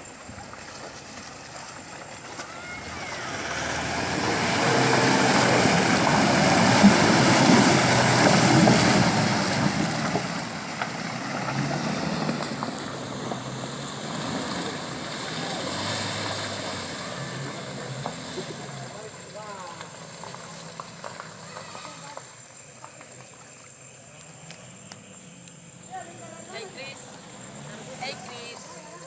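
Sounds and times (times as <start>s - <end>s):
tyres rushing through spray: 0.6s - 22.4s
pickup truck engine revving: 2.0s - 22.0s, 24.7s - 29.0s.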